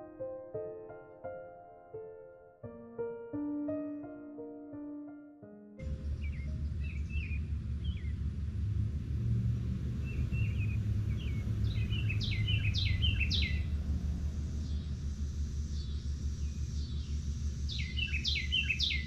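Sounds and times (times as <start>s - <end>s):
songbirds chirping: 5.8s - 8.7s, 9.6s - 19.0s
low rumble: 5.8s - 19.0s
downward-slurred bird calls: 10.4s - 13.7s, 17.7s - 19.0s.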